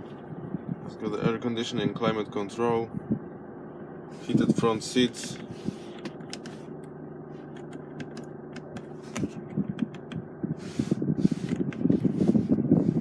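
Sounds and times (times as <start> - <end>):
car cabin hum: 0.0 - 13.0
rustling and rumbling: 4.1 - 13.0.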